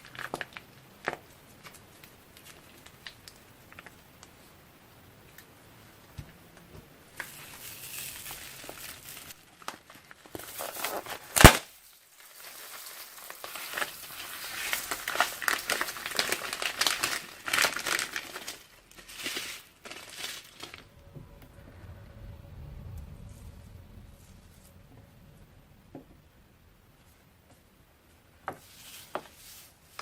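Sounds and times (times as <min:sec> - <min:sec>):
slime and plastic crinkling: 0:00.0 - 0:04.5, 0:07.2 - 0:20.9.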